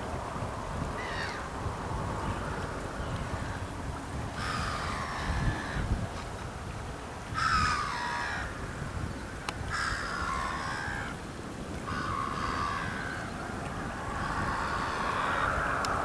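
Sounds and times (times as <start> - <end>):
bird harsh calls: 1.0 - 1.5, 11.9 - 16.0.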